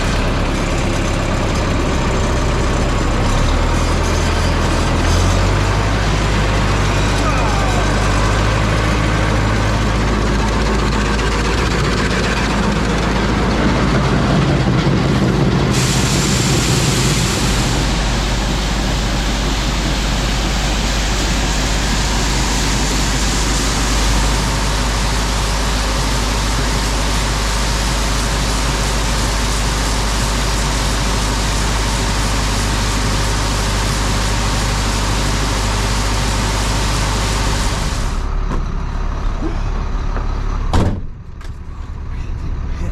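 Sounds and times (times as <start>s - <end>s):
tractor engine running: 0.0s - 42.9s
steady hiss: 15.7s - 38.1s.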